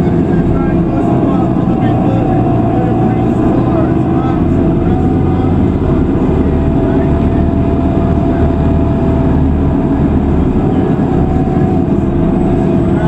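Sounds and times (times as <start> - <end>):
bus engine and road rumble: 0.0 - 13.0
faint hum: 0.0 - 13.0.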